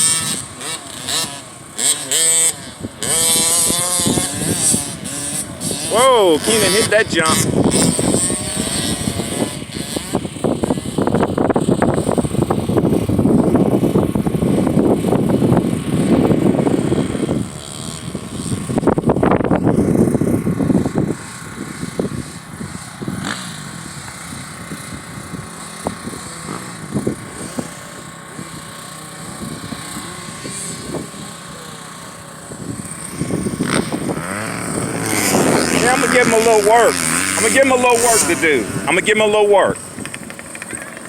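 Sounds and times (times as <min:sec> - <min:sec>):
motocross bikes running: 0:00.0 - 0:41.0.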